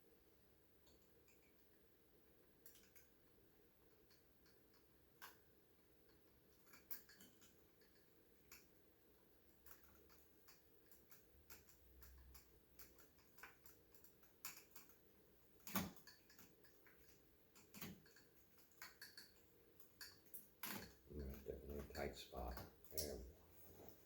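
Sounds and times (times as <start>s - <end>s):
small clicks and taps of tools: 2.6s - 3.1s, 4.0s - 5.4s, 6.0s - 8.8s, 9.6s - 15.0s, 15.6s - 23.2s.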